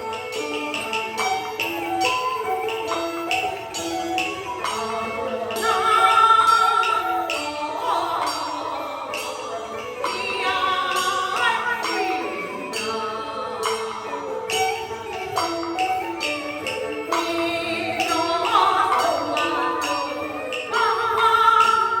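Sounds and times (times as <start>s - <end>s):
instrumental accompaniment: 0.0s - 22.0s
sharp percussion strikes: 0.0s - 22.0s
opera singing voice: 5.0s - 14.4s, 17.2s - 22.0s.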